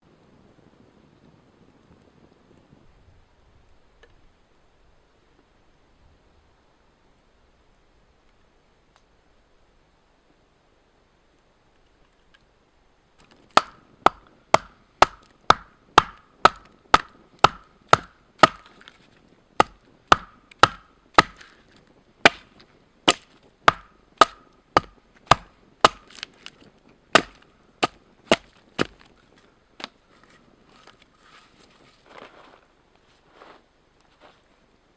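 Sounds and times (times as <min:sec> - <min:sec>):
axe chopping wood: 0:13.2 - 0:19.0, 0:19.6 - 0:29.1.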